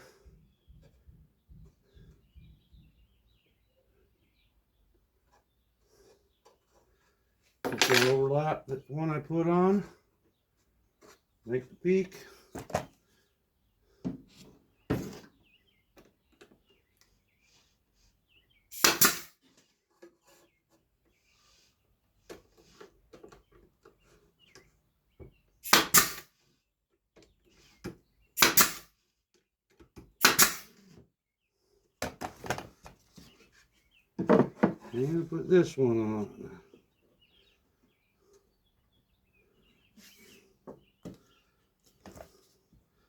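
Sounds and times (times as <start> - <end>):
wood handling clicks and knocks: 7.6 - 8.4, 34.2 - 35.0
brad nailer shots: 18.7 - 19.4, 25.6 - 26.3, 28.4 - 28.9, 30.2 - 30.8.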